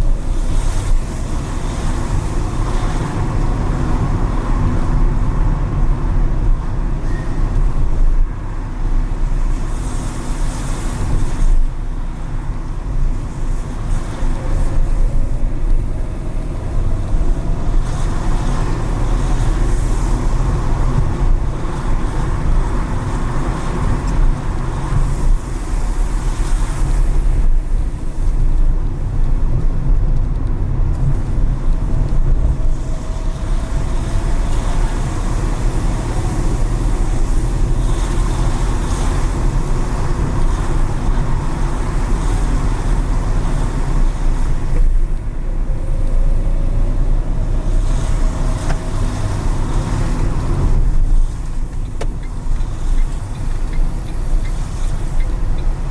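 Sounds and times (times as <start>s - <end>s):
car engine and road rumble: 0.0s - 55.9s.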